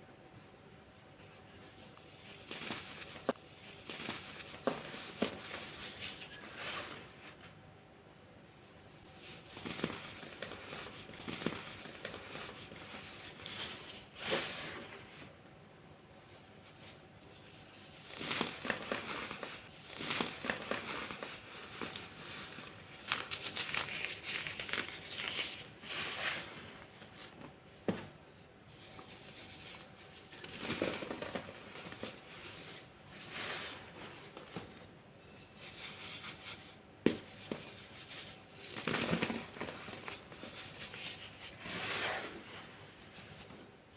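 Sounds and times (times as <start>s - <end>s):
baking soda crunching and crackling: 1.0s - 7.3s, 16.6s - 26.9s.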